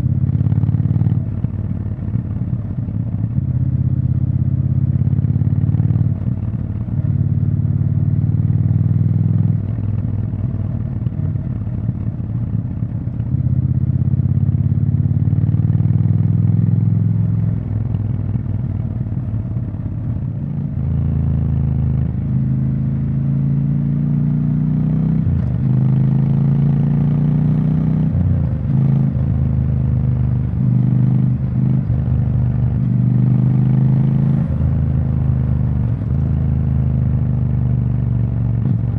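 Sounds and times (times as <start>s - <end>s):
motorcycle engine revving: 20.5s - 38.9s.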